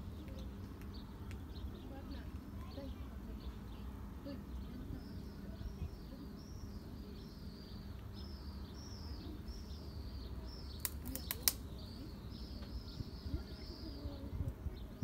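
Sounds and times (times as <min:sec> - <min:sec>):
small bird chirping: 0:00.0 - 0:15.0
sharp clicks: 0:10.7 - 0:11.7.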